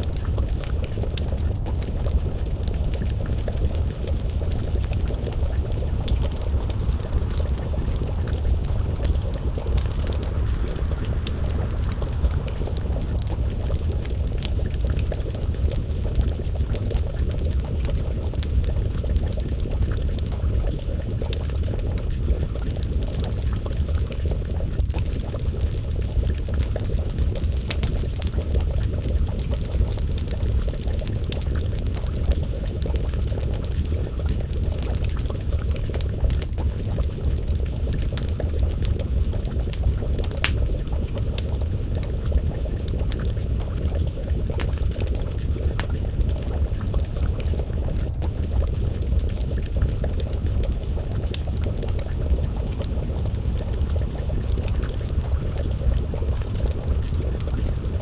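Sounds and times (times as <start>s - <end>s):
stew bubbling in a pot: 0.0s - 58.0s
wood fire crackling: 0.0s - 58.0s.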